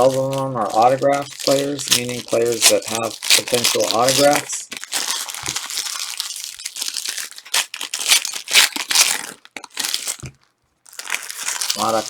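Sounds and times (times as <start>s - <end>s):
wrappers tearing and crinkling: 0.0s - 12.0s.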